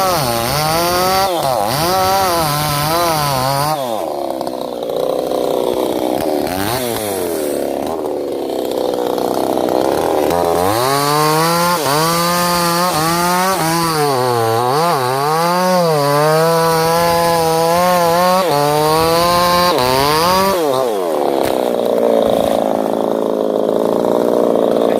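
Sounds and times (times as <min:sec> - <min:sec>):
chainsaw cutting wood: 0:00.0 - 0:24.9.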